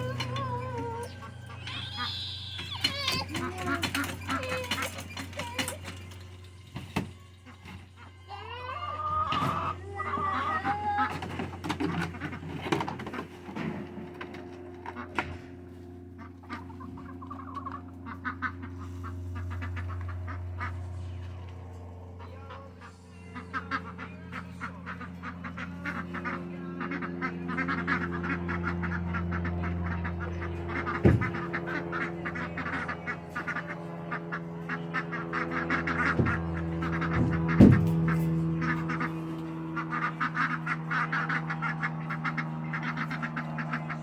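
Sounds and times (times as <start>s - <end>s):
ducks quacking: 0.0s - 44.0s
low mechanical hum: 0.0s - 44.0s.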